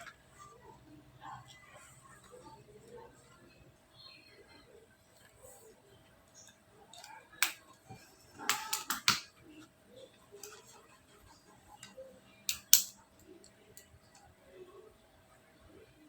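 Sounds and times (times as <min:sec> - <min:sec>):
small objects tapping and clicking: 0:12.5 - 0:13.0.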